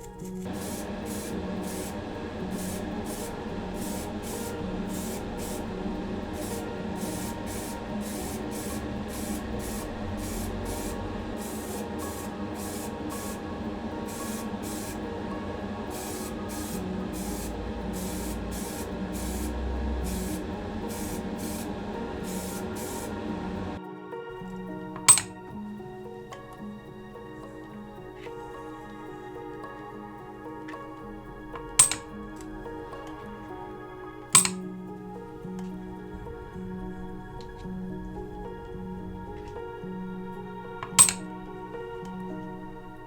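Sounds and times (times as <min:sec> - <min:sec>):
spray paint hissing bursts: 0:00.0 - 0:23.6, 0:25.0 - 0:25.4, 0:31.6 - 0:32.1, 0:34.3 - 0:34.6, 0:40.8 - 0:41.2
background music: 0:00.0 - 0:43.0.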